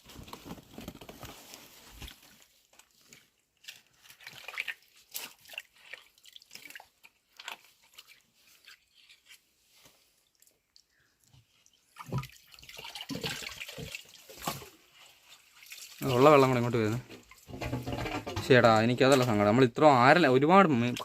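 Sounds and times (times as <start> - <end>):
hands splashing in muddy water: 3.6 - 9.4, 11.9 - 17.4.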